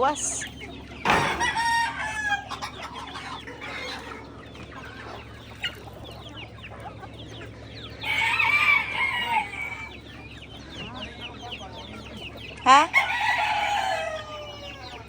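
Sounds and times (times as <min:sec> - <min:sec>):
chickens clucking: 0:00.0 - 0:15.0
high chick peeps: 0:00.0 - 0:15.0
rooster crowing: 0:01.2 - 0:02.6, 0:08.0 - 0:10.0, 0:12.9 - 0:15.0.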